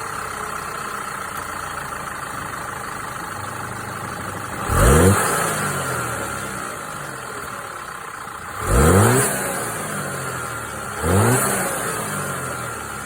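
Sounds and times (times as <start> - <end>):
car engine idling: 0.0 - 13.0
car engine revving: 4.4 - 7.6, 8.5 - 13.0.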